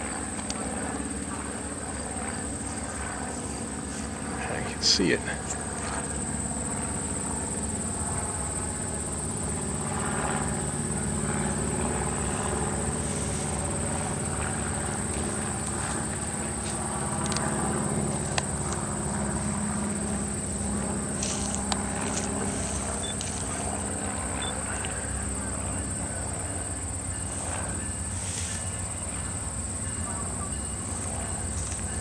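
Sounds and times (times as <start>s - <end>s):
insects chirring: 0.0s - 32.0s
diesel locomotive rumbling: 26.6s - 32.0s.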